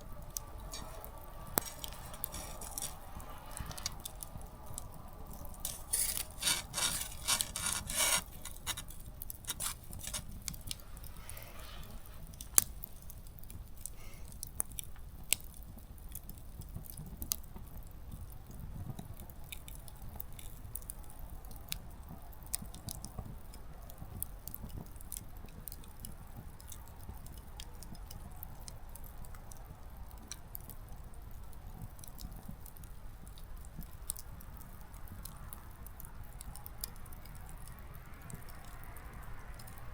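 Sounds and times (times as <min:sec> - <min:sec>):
campfire crackling: 0:00.0 - 0:18.4.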